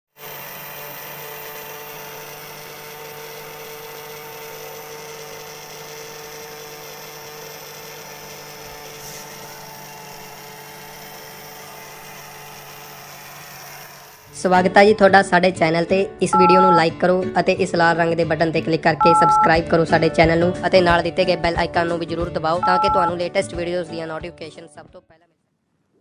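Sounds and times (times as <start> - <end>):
electrical hum: 16.4 - 16.8, 19.0 - 19.6.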